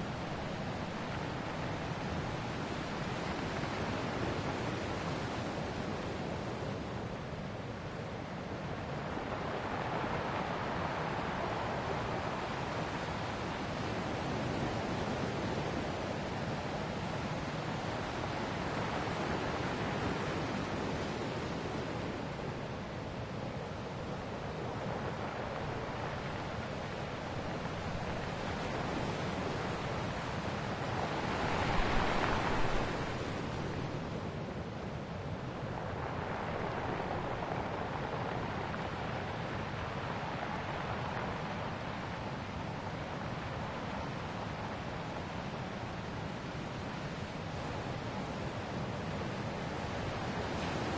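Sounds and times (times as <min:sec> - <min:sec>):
ocean waves on shore: 0:00.0 - 0:50.9.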